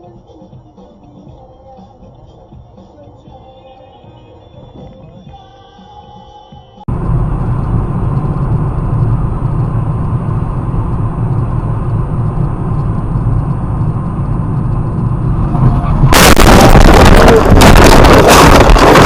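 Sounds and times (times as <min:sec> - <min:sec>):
car engine and tyres rumbling: 0:06.9 - 0:19.0.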